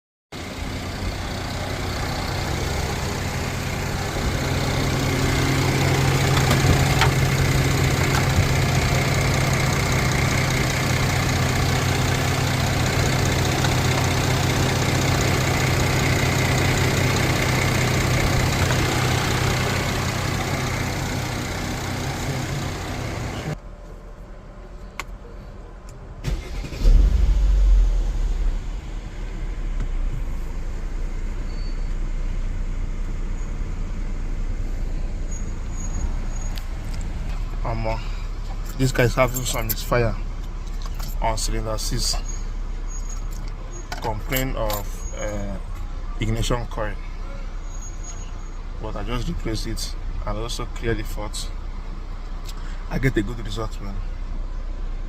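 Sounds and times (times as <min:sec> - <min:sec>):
engine running: 0:00.4 - 0:55.0
short deep rumble: 0:26.8 - 0:32.4.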